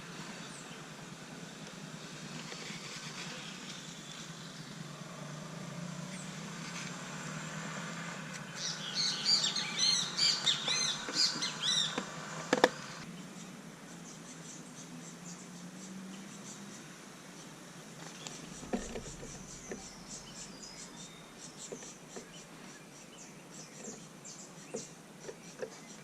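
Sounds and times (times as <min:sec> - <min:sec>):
songbird chirping: 0:00.1 - 0:26.0
steady low hum: 0:18.2 - 0:23.4.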